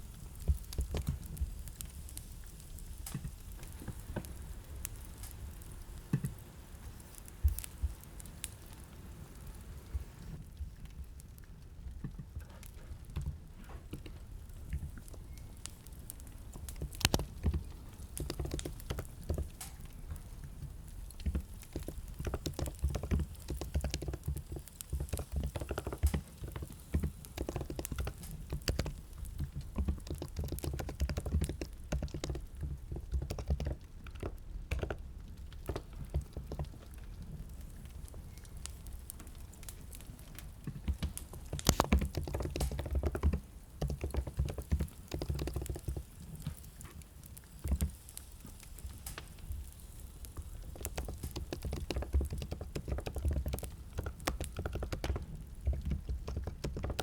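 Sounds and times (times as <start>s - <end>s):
computer keyboard typing: 21.3s - 35.1s, 41.0s - 46.1s, 50.7s - 57.0s.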